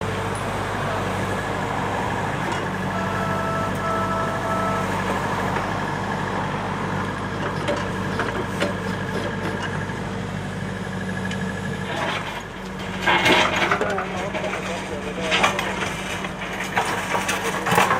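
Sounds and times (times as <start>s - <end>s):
excavator diesel engine running: 0.0s - 17.9s
two-part high tone: 2.9s - 4.9s.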